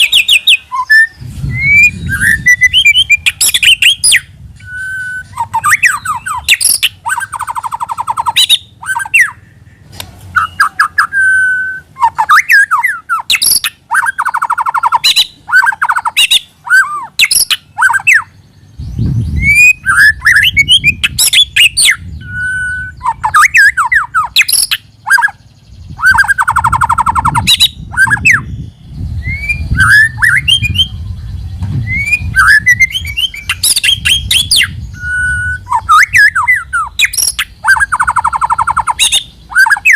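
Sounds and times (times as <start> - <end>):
bird singing whistles and trills: 0.0 - 39.9
low rumble: 1.0 - 6.5, 18.4 - 23.3, 25.4 - 37.7.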